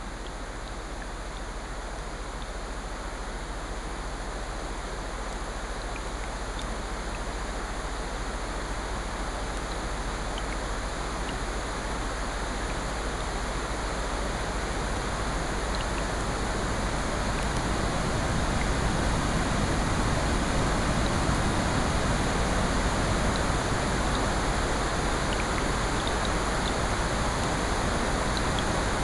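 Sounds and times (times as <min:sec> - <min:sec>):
rain: 0:00.0 - 0:29.0
ocean surf: 0:16.2 - 0:29.0.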